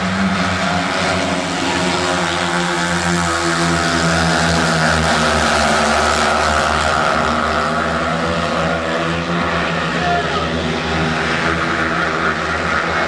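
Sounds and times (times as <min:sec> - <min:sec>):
motorcycle engines racing: 0:00.0 - 0:13.0.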